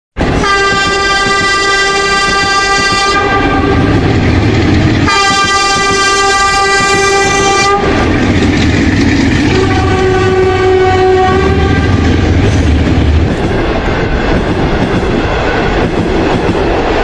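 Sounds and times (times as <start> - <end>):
train horn blasts: 0.2 - 4.1, 5.0 - 8.1, 9.5 - 12.2
moving train rumble: 0.2 - 17.0.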